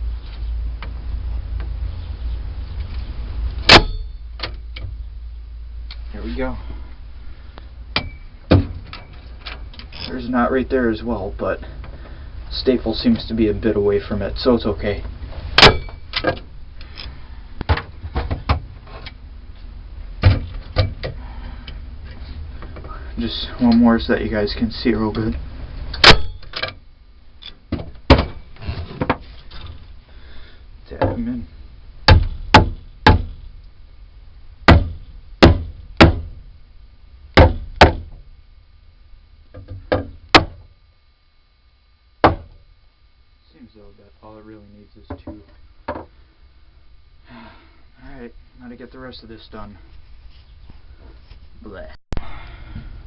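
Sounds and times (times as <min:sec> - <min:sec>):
tools and wood knocking: 0:45.1 - 0:46.1.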